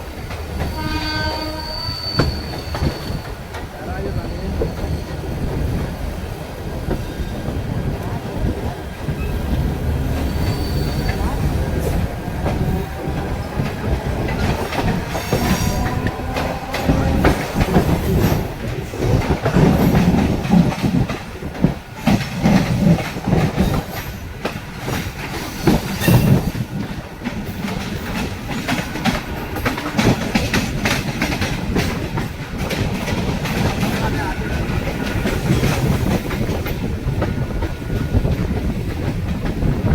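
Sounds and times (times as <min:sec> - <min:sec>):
train wheels clattering over rail joints: 0:00.0 - 0:39.9
train wheels squealing: 0:00.7 - 0:05.4, 0:10.1 - 0:12.0.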